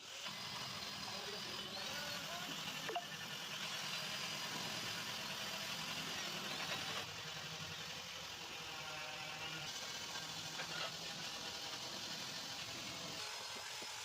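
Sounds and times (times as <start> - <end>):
car engine idling: 0.1 - 8.7.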